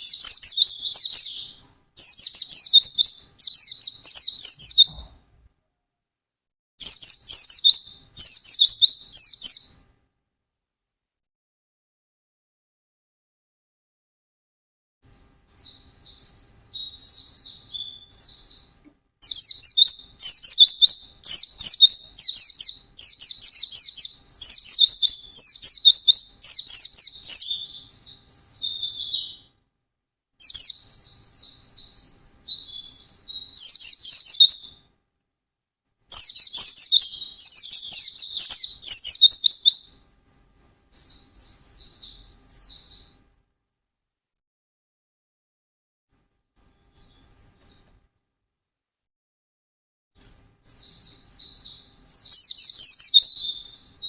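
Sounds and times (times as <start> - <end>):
bird twittering: 0.0 - 5.2, 6.8 - 9.9, 15.0 - 29.5, 30.4 - 34.8, 36.1 - 43.2, 50.2 - 54.0.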